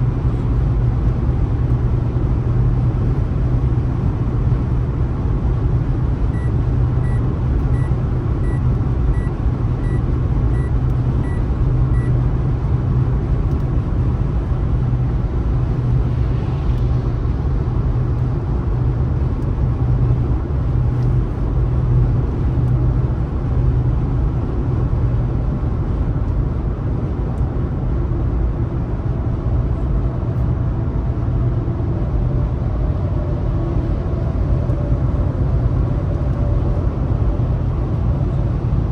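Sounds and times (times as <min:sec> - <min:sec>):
car road and tyre rumble: 0:00.0 - 0:38.9
short electronic beep: 0:06.3 - 0:11.4.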